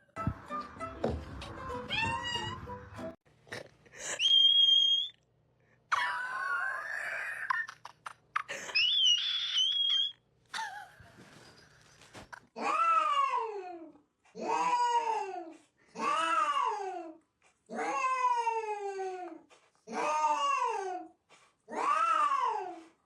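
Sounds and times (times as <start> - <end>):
cat meowing: 1.9 - 2.6.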